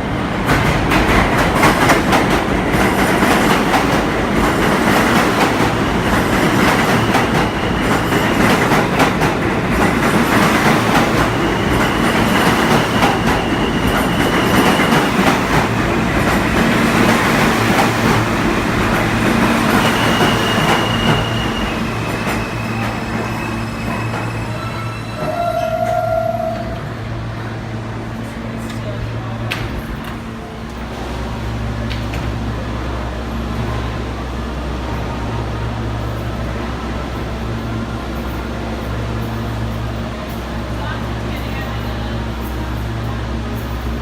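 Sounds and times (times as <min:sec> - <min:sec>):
subway wheels clattering: 0:00.0 - 0:44.0
high wheel squeal: 0:11.2 - 0:15.4, 0:19.5 - 0:26.8.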